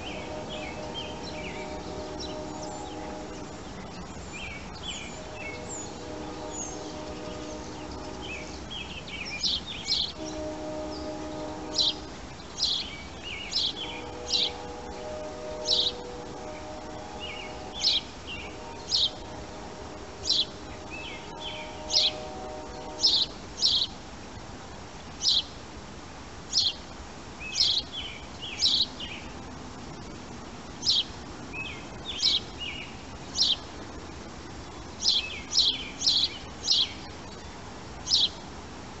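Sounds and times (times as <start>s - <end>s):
birds chirping: 0.0s - 24.0s, 30.8s - 33.7s, 34.6s - 38.4s
faint low hum: 0.0s - 25.3s.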